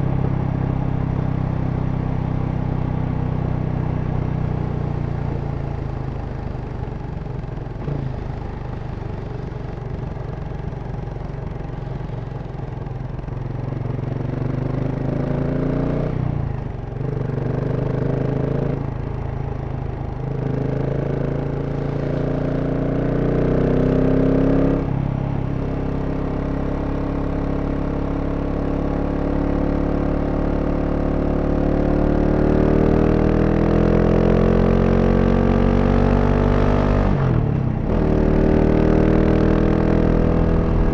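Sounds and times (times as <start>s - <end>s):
motorcycle engine shifting gears: 32.3s - 40.9s.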